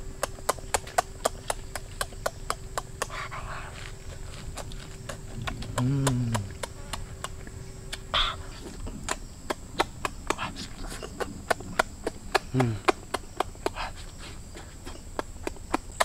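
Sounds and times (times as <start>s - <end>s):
person chewing with lip-smacking: 0.0s - 16.0s
person humming: 4.6s - 9.2s, 10.3s - 15.2s.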